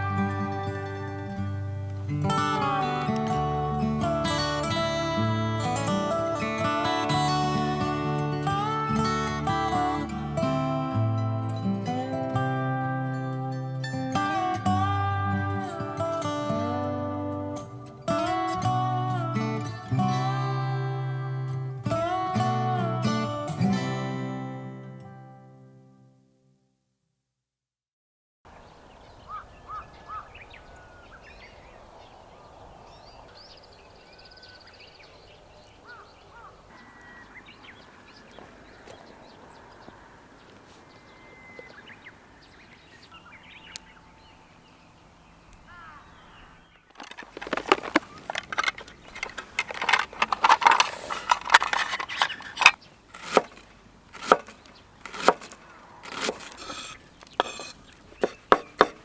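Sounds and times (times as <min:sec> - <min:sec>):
birds calling: 0:28.5 - 0:59.0
loud chopping: 0:53.1 - 0:59.0.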